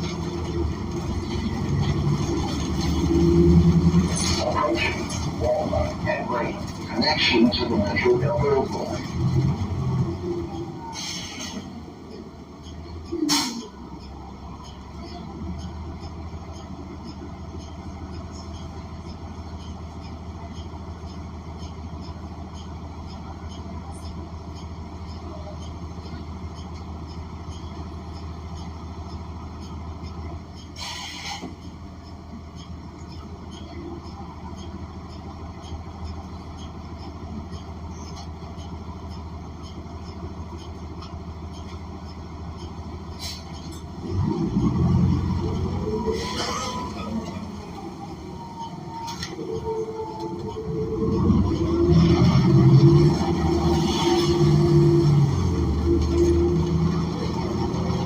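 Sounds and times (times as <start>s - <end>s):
bus engine droning: 0.0s - 58.0s
faint light ticks: 12.6s - 43.9s.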